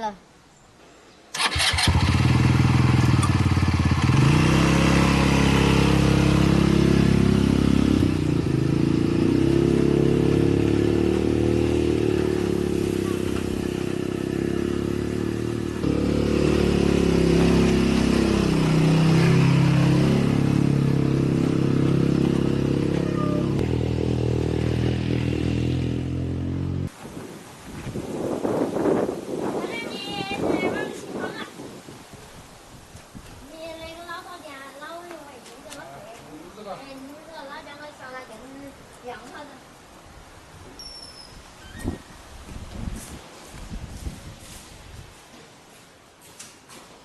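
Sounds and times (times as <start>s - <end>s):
motor tricycle engine revving: 1.4s - 26.9s.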